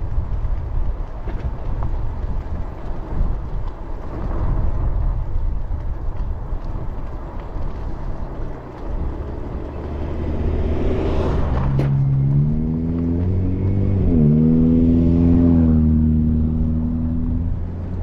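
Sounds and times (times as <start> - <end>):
vehicle passing whoosh: 8.4 - 18.0.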